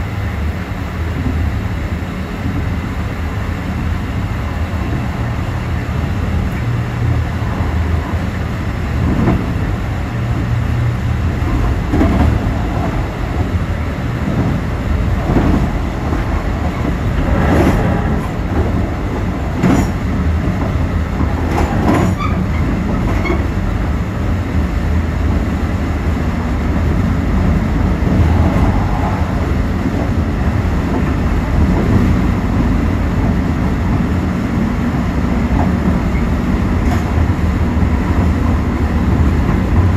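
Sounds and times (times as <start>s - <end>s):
train wheels rumbling on rail: 0.0s - 39.9s
wheels clacking over rail joints: 11.2s - 24.0s.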